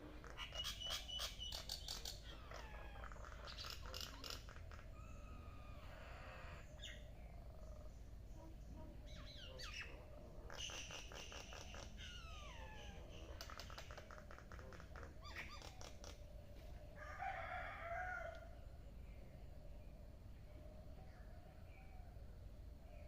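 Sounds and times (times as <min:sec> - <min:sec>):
birds chirping and trilling: 0:00.0 - 0:23.0.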